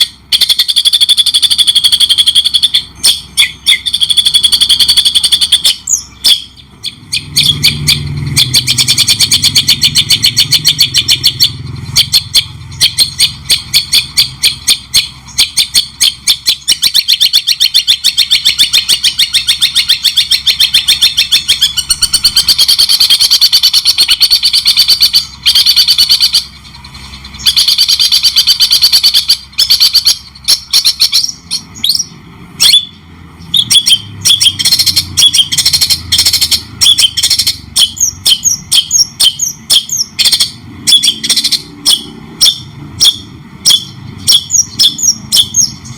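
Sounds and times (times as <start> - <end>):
songbird trilling: 0.0 - 45.9.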